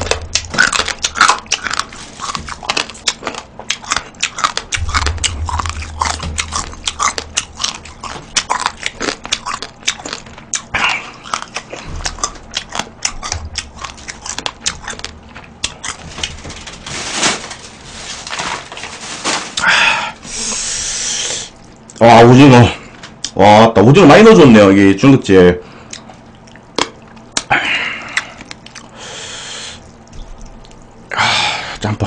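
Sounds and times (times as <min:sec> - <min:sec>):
wet chewing mouth clicks: 0:00.0 - 0:16.0, 0:25.9 - 0:27.5, 0:28.1 - 0:29.0, 0:29.8 - 0:31.0.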